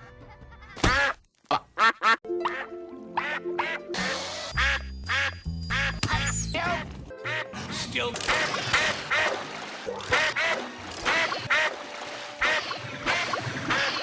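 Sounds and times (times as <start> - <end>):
duck quacking: 0.9 - 3.8, 7.2 - 7.6, 10.0 - 11.8, 12.4 - 14.0
background music: 2.2 - 14.0.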